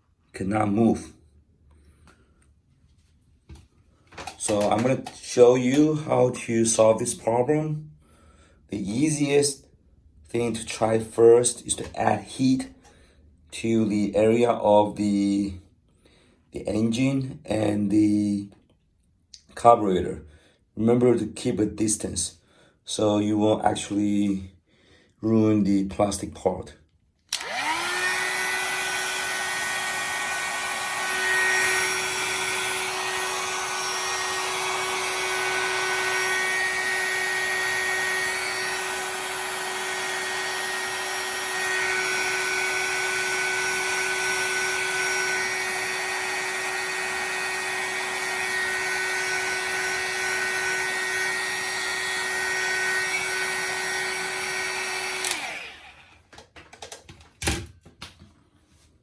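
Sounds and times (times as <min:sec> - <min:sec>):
hot-air blower whining: 0:04.1 - 0:06.0, 0:27.3 - 0:56.4.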